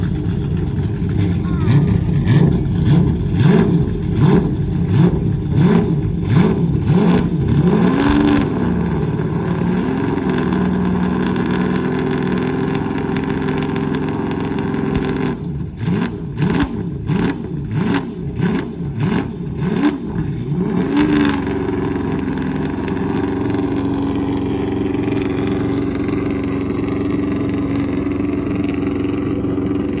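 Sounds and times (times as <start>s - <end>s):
car engine idling: 0.0s - 30.0s
car engine revving in blips: 0.0s - 30.0s.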